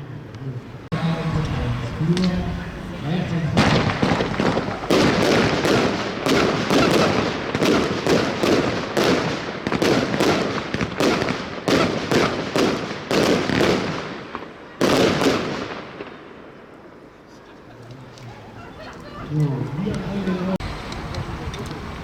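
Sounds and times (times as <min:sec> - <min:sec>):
firework shots with hiss: 0:01.3 - 0:16.4.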